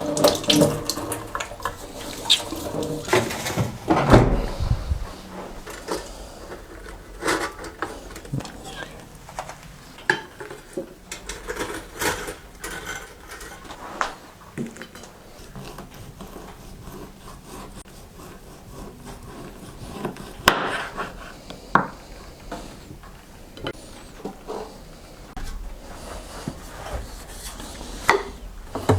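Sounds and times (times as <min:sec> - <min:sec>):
objects knocking and clattering: 0:00.0 - 0:13.8, 0:28.1 - 0:28.9.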